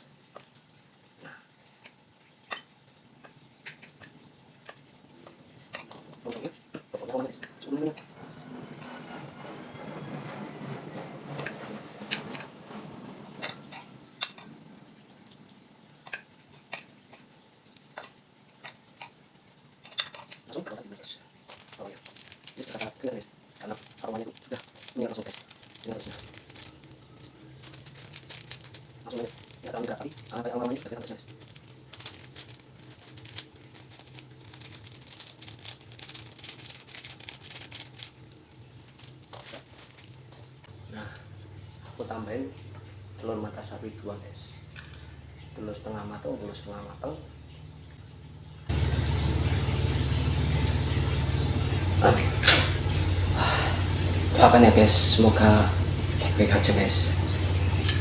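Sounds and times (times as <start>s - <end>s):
utensils clicking and rustling: 1.8s - 14.6s, 19.8s - 20.8s, 21.4s - 40.5s, 56.3s - 58.0s
noodles stirring rustle: 12.2s - 47.3s
steady low hum: 21.6s - 58.0s.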